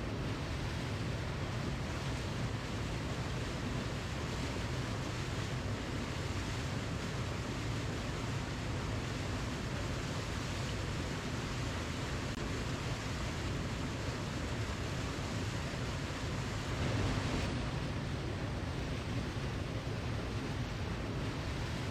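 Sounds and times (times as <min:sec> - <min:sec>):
waterfall rushing: 0:15.8 - 0:18.8.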